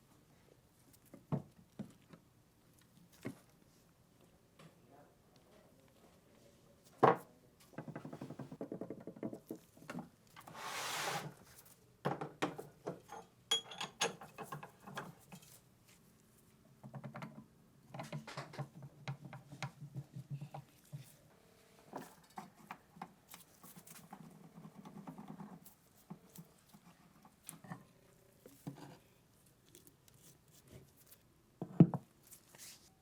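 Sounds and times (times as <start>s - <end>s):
hissing scrape: 10.4s - 11.3s.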